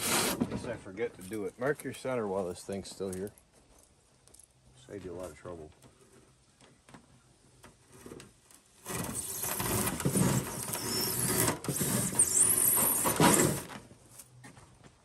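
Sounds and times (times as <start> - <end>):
foam board being cut and scraped: 0.0 - 0.4, 8.8 - 13.8.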